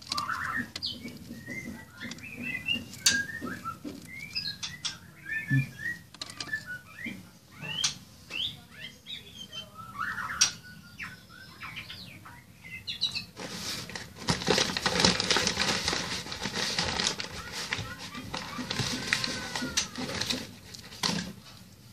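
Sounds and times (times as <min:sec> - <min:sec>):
small birds chirping: 0:00.0 - 0:21.9
dense crackly noise: 0:13.4 - 0:21.6.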